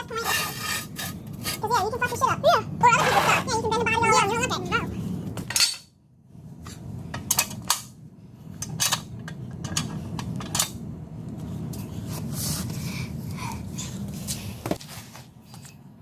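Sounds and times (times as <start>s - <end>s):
metal tools clinking: 5.5s - 5.9s.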